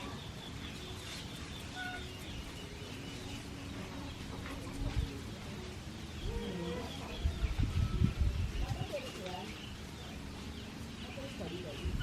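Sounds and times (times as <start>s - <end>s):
bird chirps: 0.0s - 4.6s
outdoor background noise: 0.0s - 12.0s.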